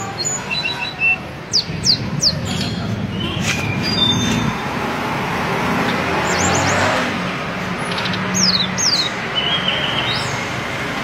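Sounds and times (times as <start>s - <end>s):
traffic noise: 0.0s - 11.0s
bird whistling: 0.2s - 4.5s.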